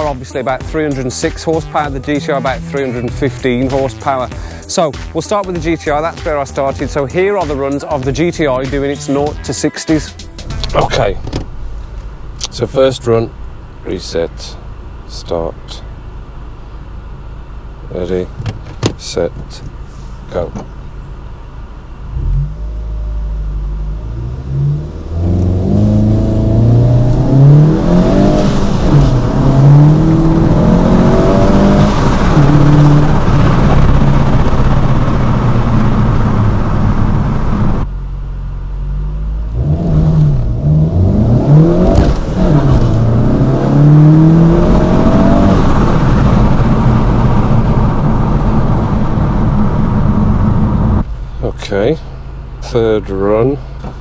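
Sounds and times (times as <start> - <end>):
car engine accelerating hard: 0.0 - 4.6, 21.9 - 54.0.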